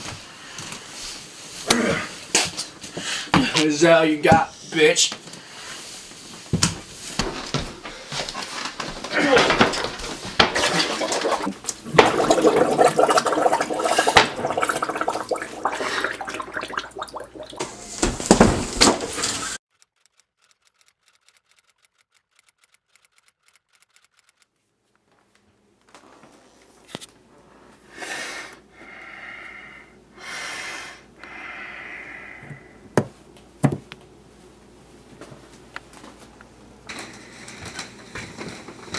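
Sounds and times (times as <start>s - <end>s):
sharp clicks: 20.0s - 24.5s
dishes and cutlery clattering: 36.9s - 38.9s.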